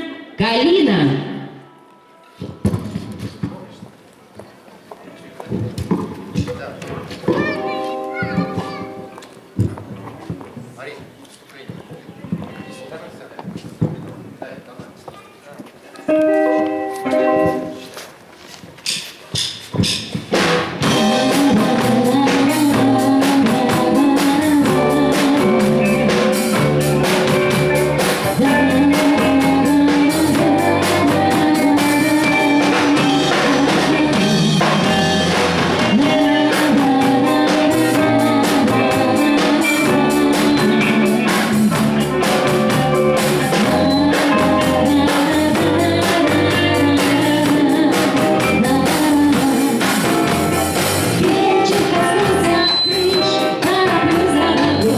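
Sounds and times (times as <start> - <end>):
live band playing: 7.0 - 9.9, 16.1 - 18.2, 18.8 - 54.9
drum kit beat: 7.3 - 9.2, 18.8 - 54.9.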